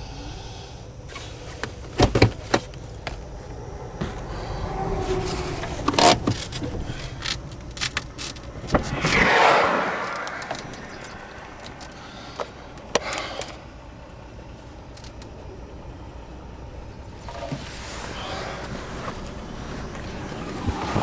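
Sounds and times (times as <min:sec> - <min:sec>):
rushing noise: 0:08.4 - 0:12.9
low rumble: 0:08.4 - 0:13.0.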